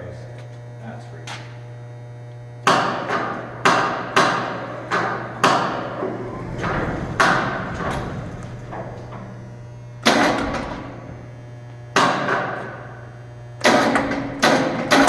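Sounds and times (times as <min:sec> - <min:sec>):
steady low hum: 0:00.0 - 0:15.0
loud metal bangs: 0:02.7 - 0:12.9.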